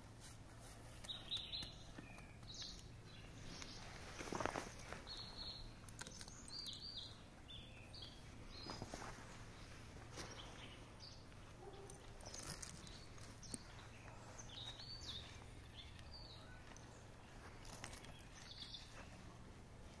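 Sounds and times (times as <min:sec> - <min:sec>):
low steady hum: 0:00.0 - 0:20.0
high bird chirps: 0:05.0 - 0:08.9.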